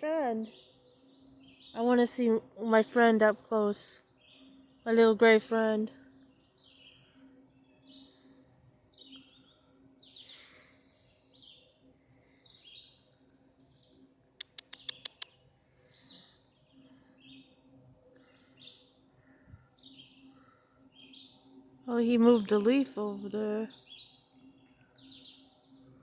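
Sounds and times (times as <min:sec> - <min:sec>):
small bird chirping: 0:08.9 - 0:13.1, 0:13.7 - 0:26.0
sharp clicks: 0:14.4 - 0:15.3.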